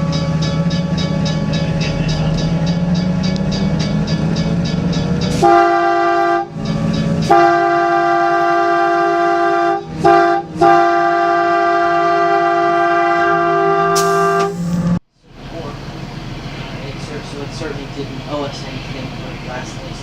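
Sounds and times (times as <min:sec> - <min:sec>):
train running: 0:00.0 - 0:20.0
train whistle chord: 0:05.2 - 0:14.9.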